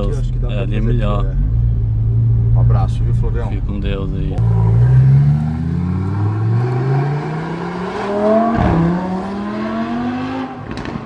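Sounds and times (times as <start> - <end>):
car engine accelerating through gears: 4.4 - 11.0.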